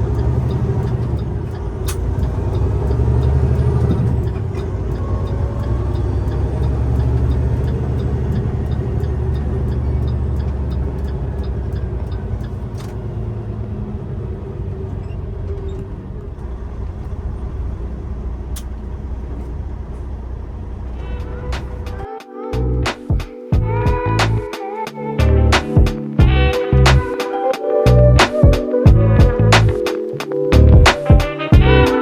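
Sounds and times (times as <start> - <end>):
truck engine running: 0.0 - 23.0, 30.6 - 30.9
road noise: 0.0 - 32.0.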